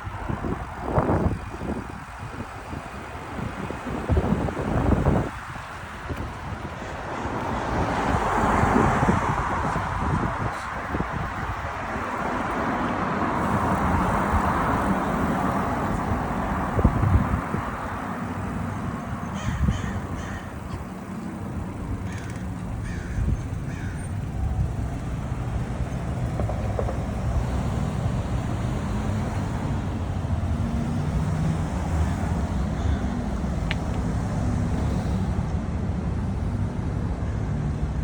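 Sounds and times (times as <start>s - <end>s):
road traffic: 0.0s - 38.0s
wind: 0.0s - 38.0s
bird cawing: 19.2s - 21.3s, 22.0s - 24.3s, 32.0s - 33.2s.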